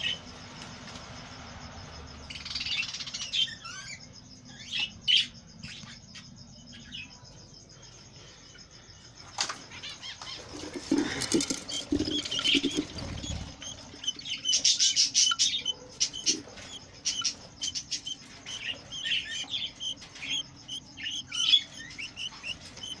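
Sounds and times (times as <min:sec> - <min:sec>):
budgerigars chirping: 0:09.7 - 0:23.0
wings flapping: 0:10.3 - 0:14.0.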